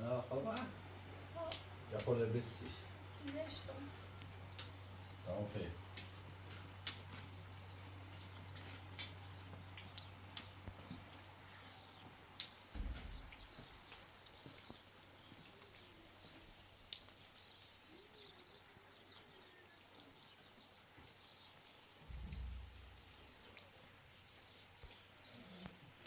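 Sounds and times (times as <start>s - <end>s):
faint rain dripping: 0.0s - 26.0s
low rumbles: 12.7s - 14.0s, 22.0s - 23.7s.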